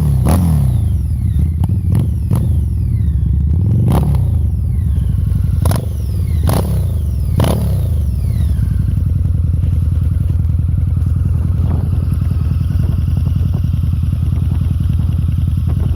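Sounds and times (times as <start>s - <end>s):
motorcycle engine idling: 0.0s - 15.9s
motorcycle engine revving: 0.0s - 15.9s.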